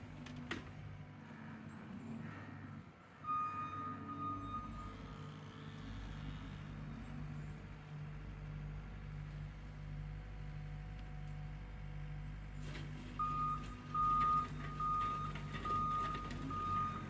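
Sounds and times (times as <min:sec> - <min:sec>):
tractor engine running: 0:09.3 - 0:17.0.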